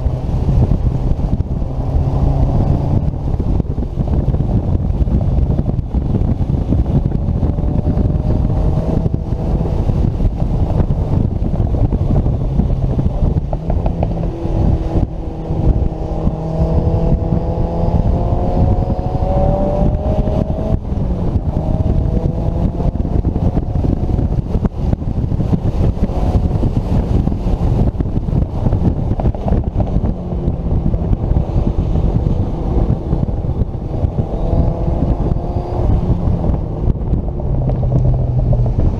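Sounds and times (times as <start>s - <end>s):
car engine pulling hard: 0.0s - 38.9s
wind and road noise: 0.0s - 38.9s.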